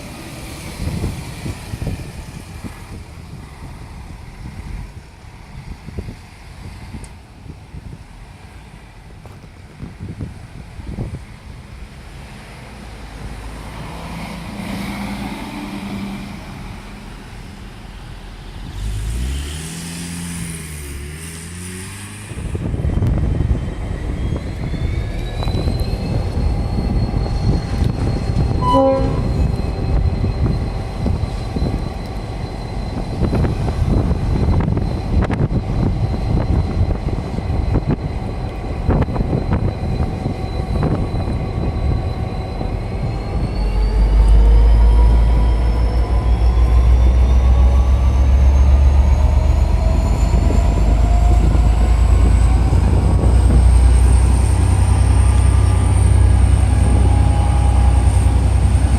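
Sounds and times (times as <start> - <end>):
train rumble: 0.0 - 58.9
high whine: 22.4 - 58.9
short pitched tone: 24.2 - 33.5.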